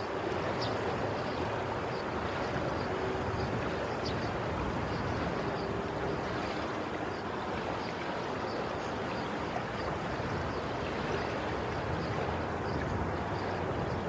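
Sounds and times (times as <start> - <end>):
sea waves washing ashore: 0.0 - 14.0.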